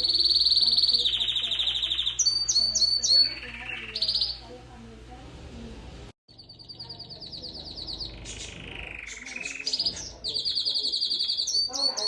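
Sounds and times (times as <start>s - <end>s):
canary singing trills: 0.0s - 4.6s, 6.3s - 12.0s.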